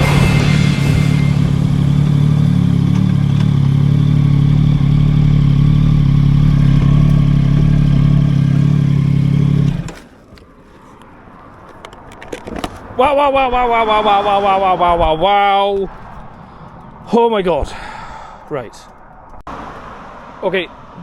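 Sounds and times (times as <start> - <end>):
motorcycle engine running hard: 0.0 - 10.0.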